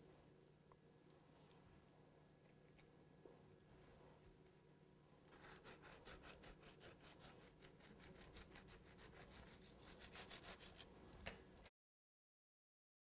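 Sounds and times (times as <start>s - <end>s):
knife sawing through cake: 5.3s - 11.4s.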